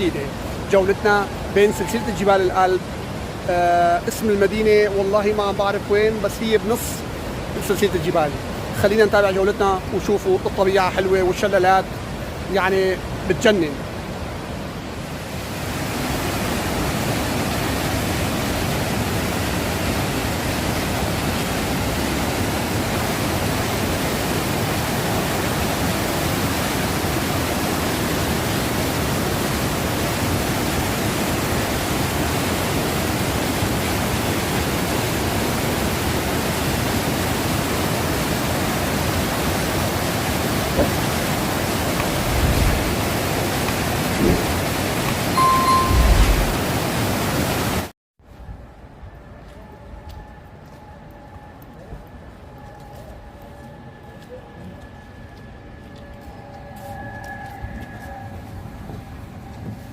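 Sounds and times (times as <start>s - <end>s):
waterfall roaring: 0.0s - 47.9s.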